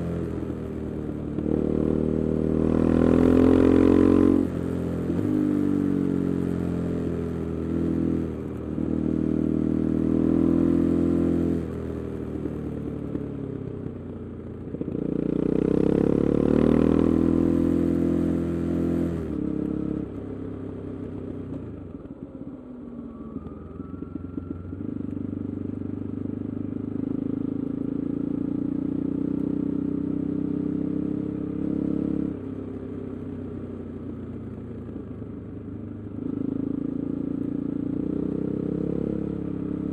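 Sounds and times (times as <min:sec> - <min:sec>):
motorcycle engine exhaust note: 0:21.6 - 0:27.8.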